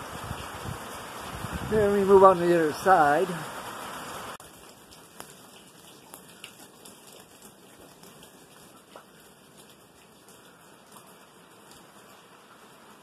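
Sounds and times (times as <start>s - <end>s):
light rain hissing: 0.0s - 13.0s
raindrops ticking: 4.4s - 12.8s.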